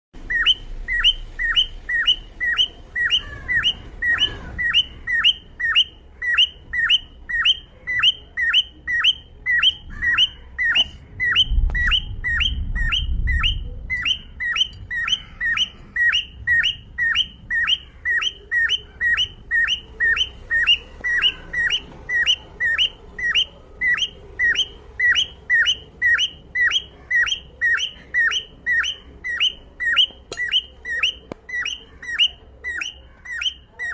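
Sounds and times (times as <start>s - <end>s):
cockatiel chirping: 0.2s - 33.9s
low rumble: 11.0s - 17.6s.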